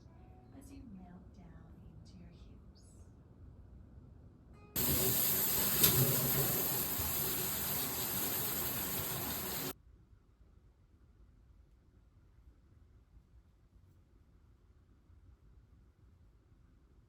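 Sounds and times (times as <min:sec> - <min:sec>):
hissing rush of noise: 0:04.8 - 0:09.7.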